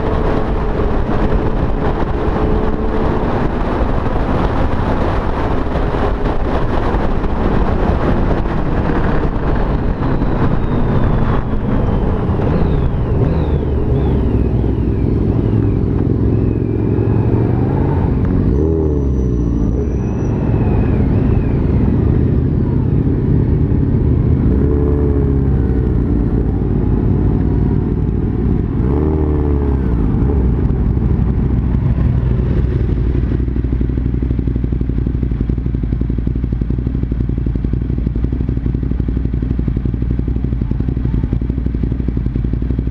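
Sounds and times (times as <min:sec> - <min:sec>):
motorcycle engine drone: 0:00.0 - 0:42.9
other motorcycles revving: 0:00.0 - 0:42.9
wind rumble: 0:00.0 - 0:42.9.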